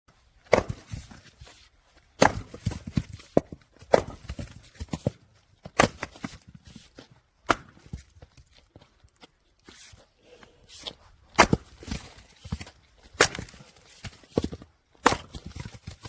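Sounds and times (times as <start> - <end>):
log splitter cracking wood: 0.4 - 0.8, 2.2 - 2.6, 11.4 - 12.0, 13.0 - 13.6.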